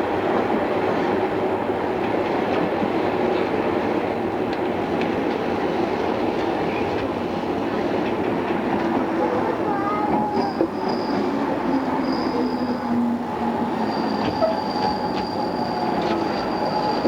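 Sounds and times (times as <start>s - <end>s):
train wheels rumbling on rail: 0.0s - 17.0s
rail joint clicks: 4.4s - 9.1s, 9.8s - 17.0s.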